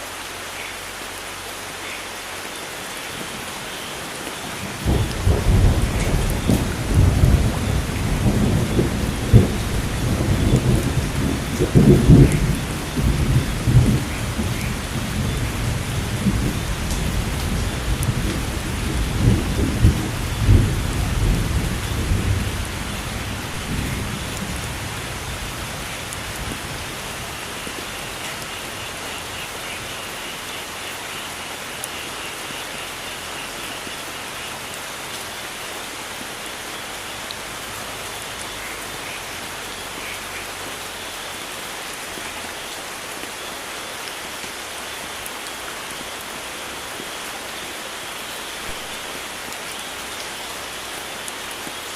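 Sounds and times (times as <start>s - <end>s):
rain falling: 0.0s - 51.9s
thunder rumbling: 4.6s - 29.9s.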